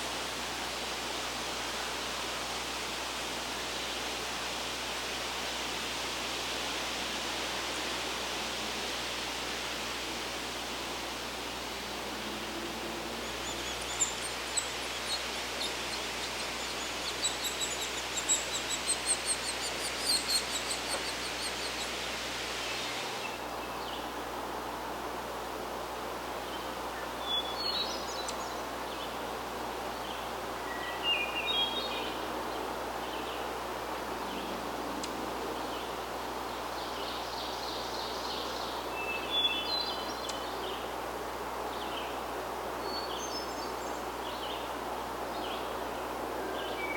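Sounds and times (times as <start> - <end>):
steady background hiss: 0.0 - 46.9
songbirds singing: 7.5 - 24.2, 26.5 - 46.9.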